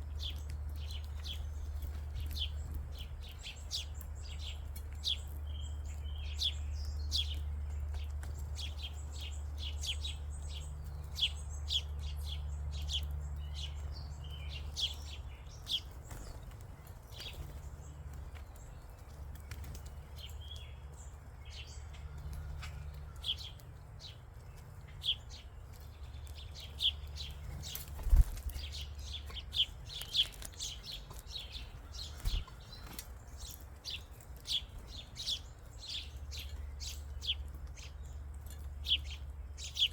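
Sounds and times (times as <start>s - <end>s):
songbirds chirping: 0.0s - 39.9s
wings fluttering: 15.6s - 20.4s, 22.1s - 35.7s.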